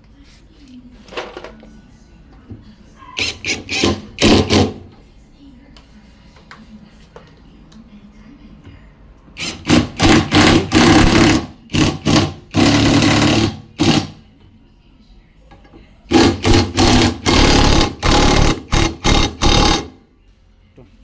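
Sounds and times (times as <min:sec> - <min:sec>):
impact driver driving screws: 0:03.2 - 0:04.8, 0:09.4 - 0:14.1, 0:16.1 - 0:19.9.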